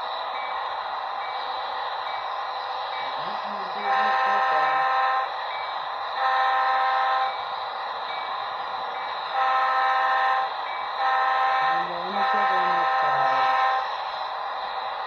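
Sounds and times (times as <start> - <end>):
model train diesel engine sound: 0.0 - 15.0
model train horn blasts: 3.8 - 5.3, 6.2 - 7.4, 9.4 - 13.9.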